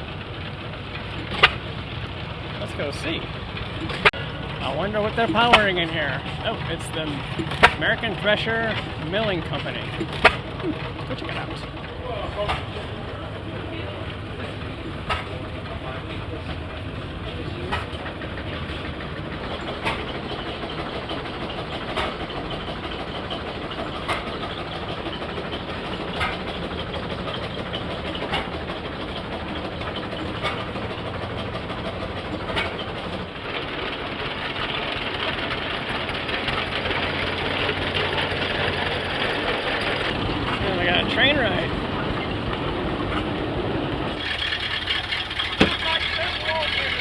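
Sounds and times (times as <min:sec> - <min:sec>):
mill machinery humming: 0:00.0 - 0:47.0
hissing machinery: 0:00.1 - 0:11.8, 0:44.1 - 0:47.0
sharp machine knocks: 0:05.0 - 0:10.5, 0:45.4 - 0:46.2.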